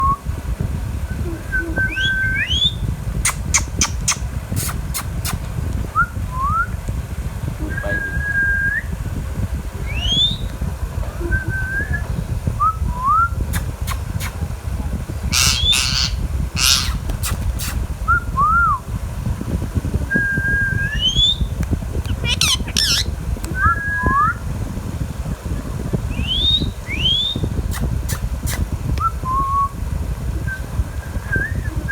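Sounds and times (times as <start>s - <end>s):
steady low rumble: 0.0s - 31.9s
parakeet whistled calls: 1.7s - 5.4s, 9.8s - 10.5s, 15.3s - 18.8s, 20.2s - 24.4s, 26.1s - 28.6s
parakeet harsh squawks: 15.3s - 17.7s, 22.1s - 23.1s.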